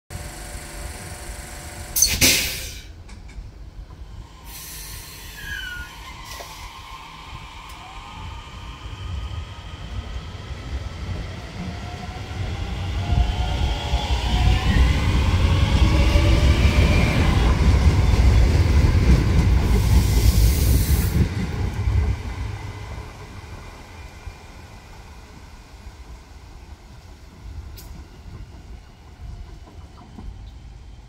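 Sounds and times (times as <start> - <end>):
electric train motors whining: 0.1 - 2.1
short high hiss: 1.9 - 3.0, 4.5 - 6.8.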